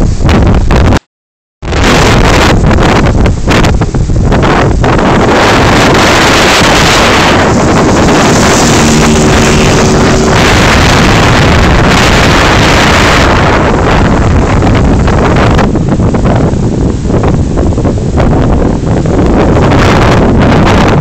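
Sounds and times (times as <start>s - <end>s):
wind buffeting microphone: 0.0s - 1.0s, 1.6s - 21.0s
motorcycle engine running: 5.3s - 16.4s.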